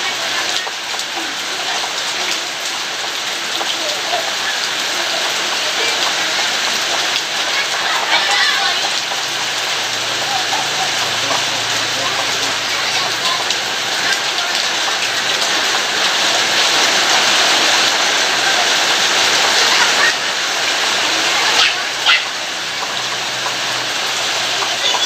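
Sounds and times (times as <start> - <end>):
heavy rain hissing: 0.0 - 25.0.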